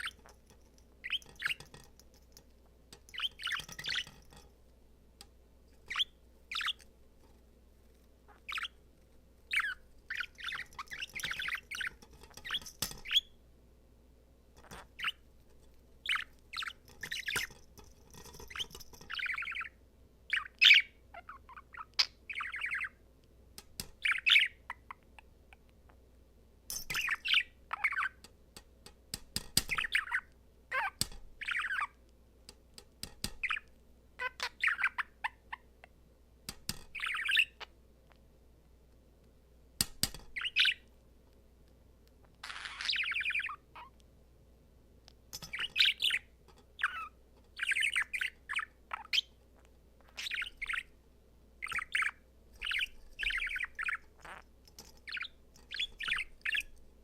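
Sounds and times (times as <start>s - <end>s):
budgerigar warbling and chattering: 50.0s - 50.9s, 51.6s - 54.4s.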